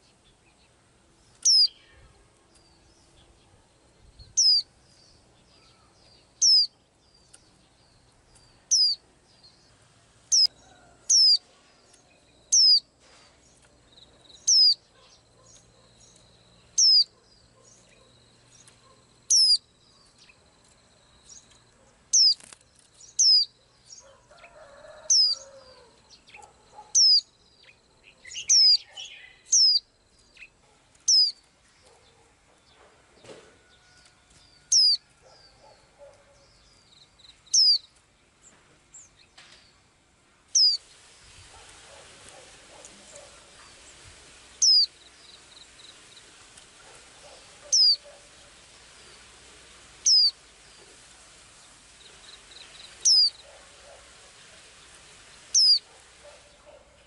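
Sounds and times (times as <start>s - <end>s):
small bird calling: 1.4s - 3.6s, 4.2s - 4.7s, 5.4s - 7.5s, 8.4s - 9.0s, 10.3s - 12.9s, 14.1s - 20.4s, 22.1s - 24.2s, 25.0s - 32.3s, 34.7s - 36.7s, 37.5s - 37.9s, 40.5s - 40.9s, 44.6s - 46.2s, 46.8s - 48.6s, 50.0s - 50.9s, 52.0s - 54.7s, 55.4s - 57.0s.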